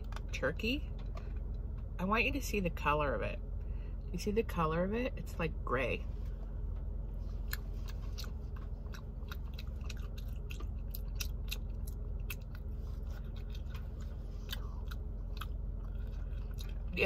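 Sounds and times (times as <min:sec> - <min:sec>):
steady low hum: 0:00.0 - 0:17.0
person chewing: 0:07.2 - 0:17.0.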